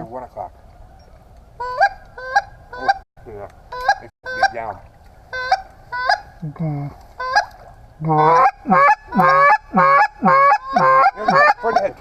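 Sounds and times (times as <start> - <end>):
goose honking: 3.7 - 6.4, 7.2 - 12.0.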